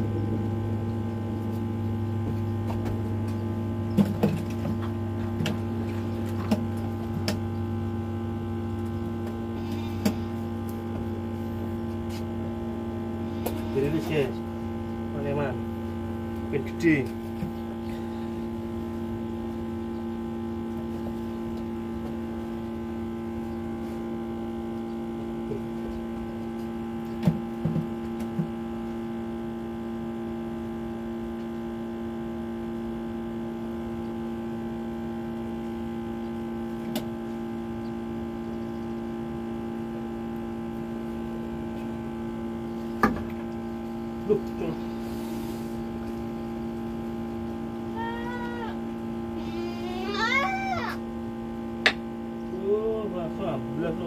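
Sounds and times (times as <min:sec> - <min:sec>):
steady hum of fixed tones: 0:00.0 - 0:54.0.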